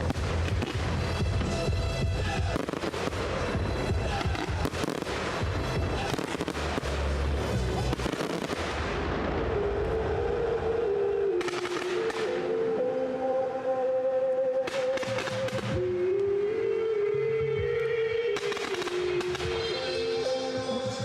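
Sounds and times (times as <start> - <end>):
music over sound system: 0.0 - 8.5, 14.7 - 21.0
fireworks bursting and crackling: 0.0 - 12.6, 14.7 - 15.9, 18.4 - 21.0.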